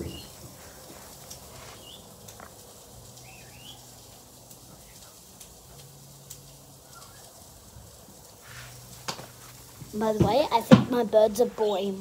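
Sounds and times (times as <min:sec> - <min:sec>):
quiet background noise: 0:00.0 - 0:12.0
faint bird chirps: 0:03.2 - 0:03.9, 0:06.8 - 0:07.4.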